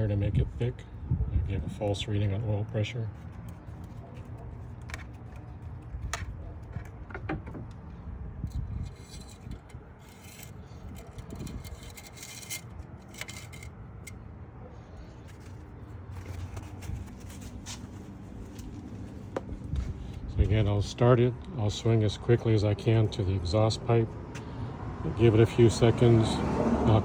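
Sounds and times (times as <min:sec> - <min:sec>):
wind rumble on microphone: 0:00.0 - 0:02.0, 0:05.9 - 0:10.1, 0:10.7 - 0:12.2, 0:19.4 - 0:21.0
handling clicks and rubbing: 0:01.8 - 0:14.2, 0:15.0 - 0:20.3
rustling: 0:15.0 - 0:20.2.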